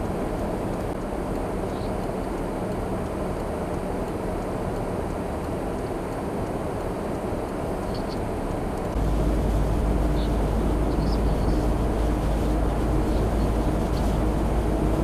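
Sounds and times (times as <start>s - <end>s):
vehicle and road rumble: 0.0s - 15.0s.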